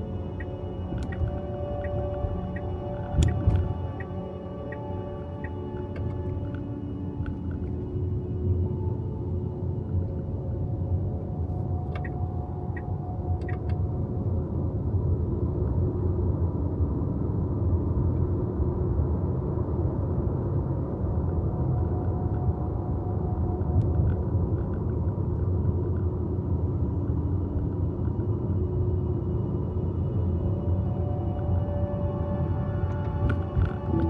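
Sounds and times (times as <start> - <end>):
long held tones: 0.0 - 14.6, 26.9 - 34.0.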